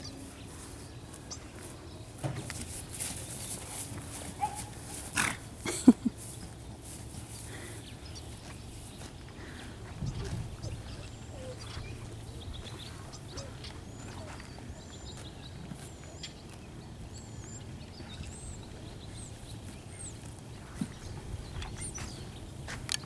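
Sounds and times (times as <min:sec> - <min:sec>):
small birds chirping: 0:05.6 - 0:23.0.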